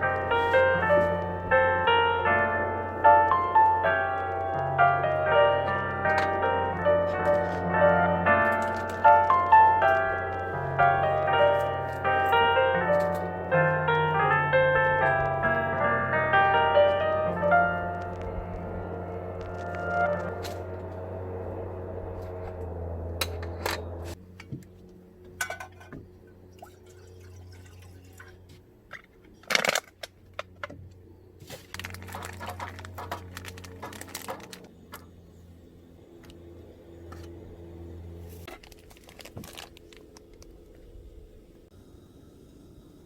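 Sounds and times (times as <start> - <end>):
steady low hum: 0.0 - 29.4, 30.1 - 43.0
liquid pouring and dripping: 26.5 - 28.5
clicks and knocks of objects: 28.9 - 35.1.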